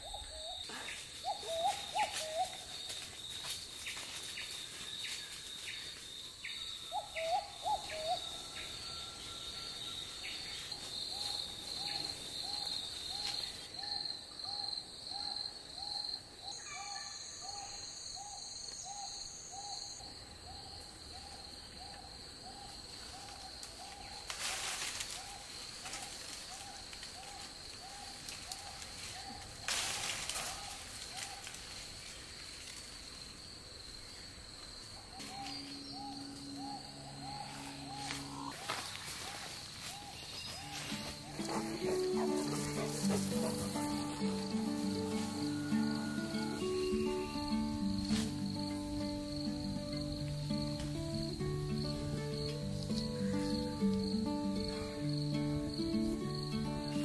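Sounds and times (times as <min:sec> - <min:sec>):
insects trilling: 0:00.0 - 0:57.0
bird hooting: 0:01.2 - 0:02.7, 0:06.9 - 0:09.8, 0:35.2 - 0:38.7, 0:40.6 - 0:47.9.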